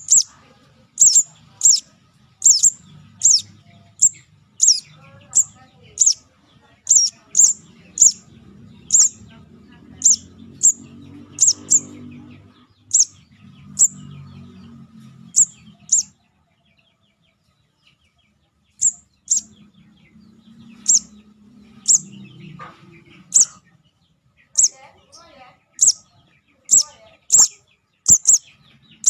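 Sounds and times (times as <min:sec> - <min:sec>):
bird sharp high chirps: 0:00.0 - 0:00.3, 0:01.0 - 0:06.2, 0:06.9 - 0:09.3, 0:10.0 - 0:12.3, 0:12.9 - 0:14.2, 0:15.3 - 0:16.2, 0:18.8 - 0:19.6, 0:20.7 - 0:21.2, 0:21.8 - 0:22.5, 0:23.2 - 0:23.6, 0:24.6 - 0:24.8, 0:25.8 - 0:29.0
faint low murmur: 0:00.0 - 0:29.0.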